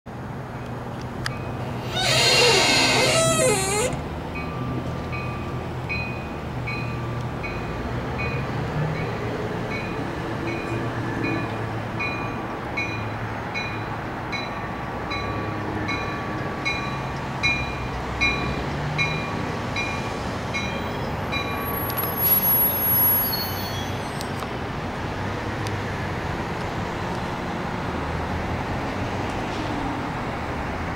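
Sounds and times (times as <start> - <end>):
train brakes squealing: 1.5 - 4.6, 20.6 - 24.4
train bell ringing: 4.3 - 8.4, 9.0 - 21.8.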